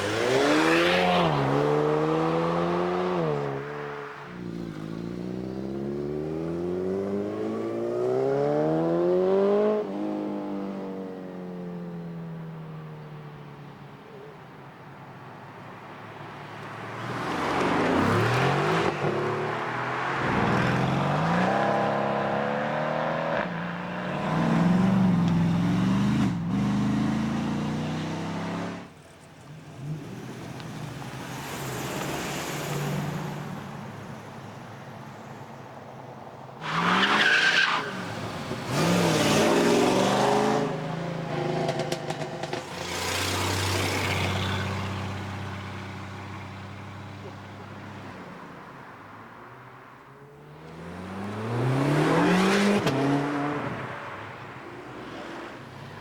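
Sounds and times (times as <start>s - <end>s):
muscle car engines accelerating: 17.1s - 34.2s.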